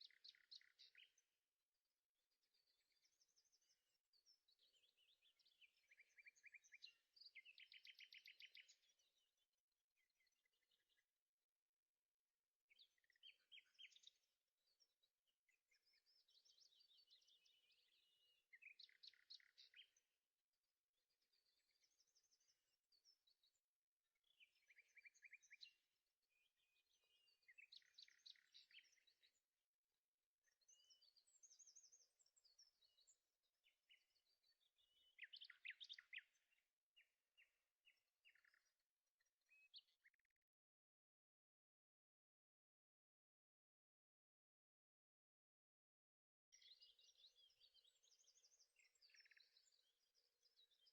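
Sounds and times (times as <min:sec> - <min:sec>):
birds chirping and trilling: 0:00.0 - 0:01.4, 0:02.4 - 0:09.4, 0:12.7 - 0:20.2, 0:21.0 - 0:23.6, 0:24.2 - 0:29.5, 0:30.4 - 0:40.4, 0:46.5 - 0:50.9.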